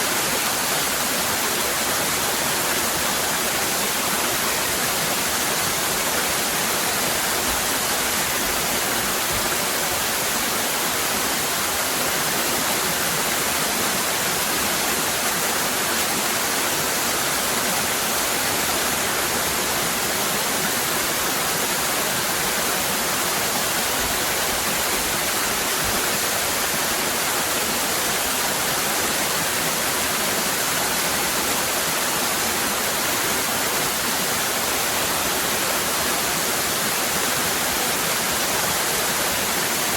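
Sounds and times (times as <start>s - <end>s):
waterfall cascading: 0.0s - 39.9s.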